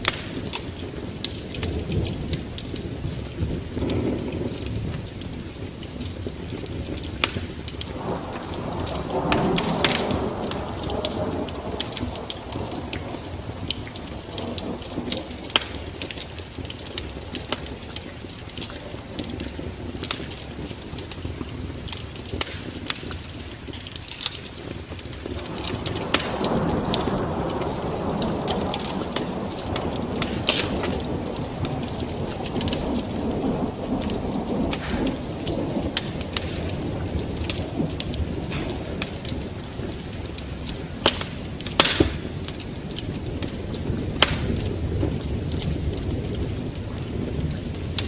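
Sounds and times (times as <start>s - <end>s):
rumble of thunder: 0.0s - 23.8s, 24.5s - 48.0s
rain: 0.0s - 48.0s
wood fire crackling and popping: 0.0s - 48.0s.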